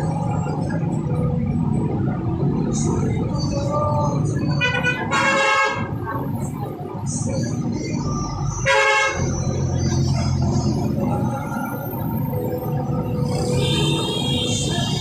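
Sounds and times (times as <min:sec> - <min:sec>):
engine rumble: 0:00.0 - 0:15.0
vehicle horns honking: 0:04.6 - 0:06.0, 0:08.6 - 0:09.3, 0:13.3 - 0:15.0.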